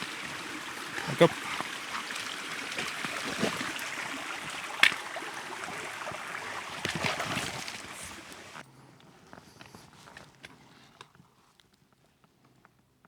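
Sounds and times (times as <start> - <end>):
stream water running: 0.0 - 8.6.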